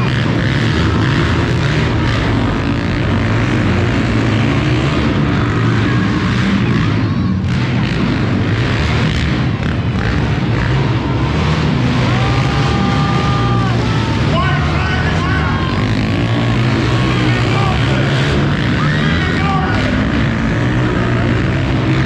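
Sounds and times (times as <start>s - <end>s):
monster truck engine droning: 0.0s - 22.0s
wide rushing noise: 0.0s - 22.0s.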